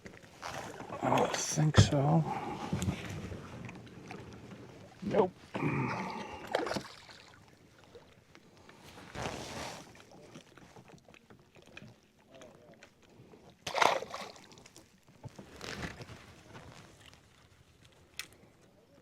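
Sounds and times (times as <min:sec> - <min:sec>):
water splashing: 0:00.4 - 0:08.1, 0:13.7 - 0:14.7.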